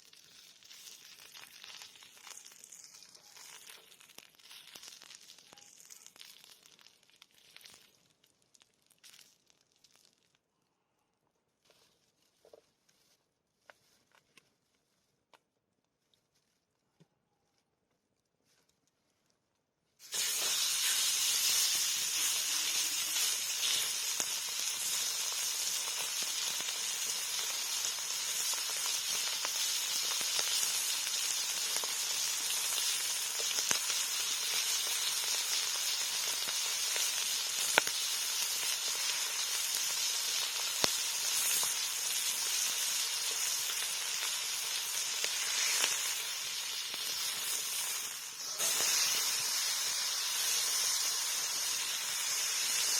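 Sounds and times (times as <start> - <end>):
wood popping in fire: 0.0 - 10.4, 23.3 - 49.3
campfire hissing: 20.0 - 52.9.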